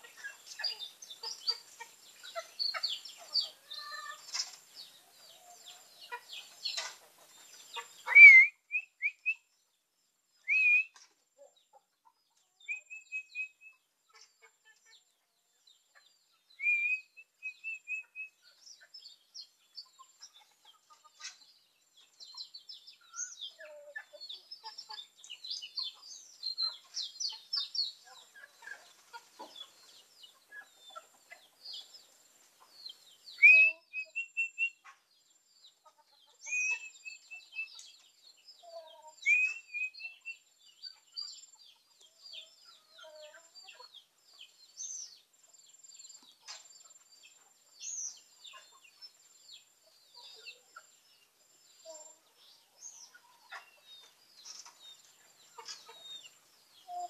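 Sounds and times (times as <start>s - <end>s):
birds chirping: 0.0s - 57.0s
whistled bird phrases: 8.0s - 9.5s, 10.4s - 11.0s, 12.6s - 13.8s, 16.6s - 18.4s, 33.4s - 34.8s, 36.4s - 37.8s, 39.2s - 40.4s.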